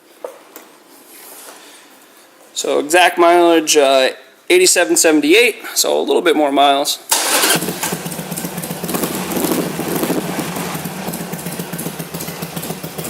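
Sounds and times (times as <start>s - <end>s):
motorcycle engine running: 7.5s - 13.0s.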